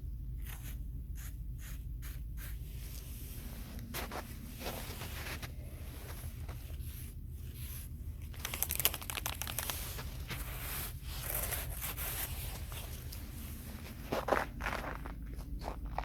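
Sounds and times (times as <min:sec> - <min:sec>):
steady low rumble: 0:00.0 - 0:16.0
crinkling crackling handling noise: 0:03.7 - 0:07.0, 0:07.6 - 0:16.0.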